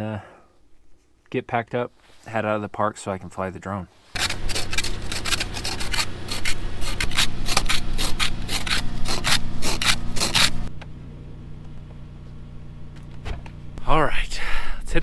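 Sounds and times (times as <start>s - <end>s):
ice scraping off car windows: 4.2s - 10.7s.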